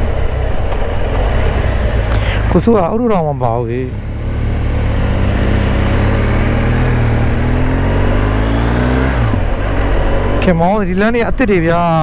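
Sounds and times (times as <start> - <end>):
motorcycle engine accelerating: 0.0 - 11.7
road and wind noise: 0.0 - 12.0.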